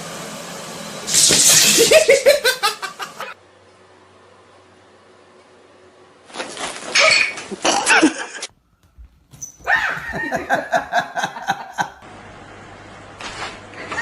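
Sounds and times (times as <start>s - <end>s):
dog barking and yapping: 9.4s - 10.4s.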